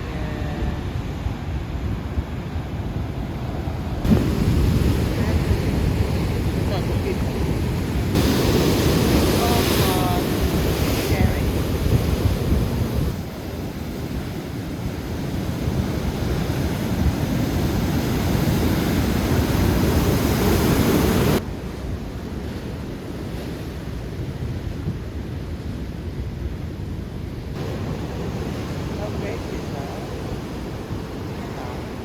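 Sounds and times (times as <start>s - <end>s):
wind buffeting microphone: 0.0s - 22.1s
surf breaking: 4.0s - 13.2s.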